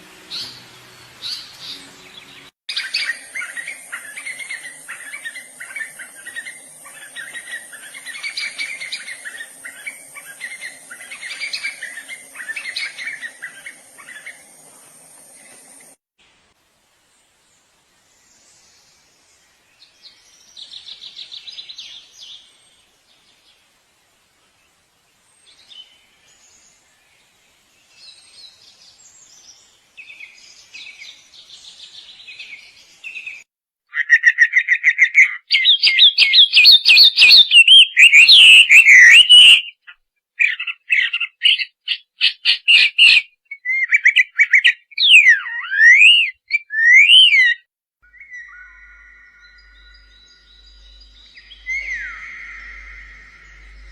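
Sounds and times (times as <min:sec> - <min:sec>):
small bird singing: 0:00.0 - 0:15.9, 0:25.4 - 0:53.9.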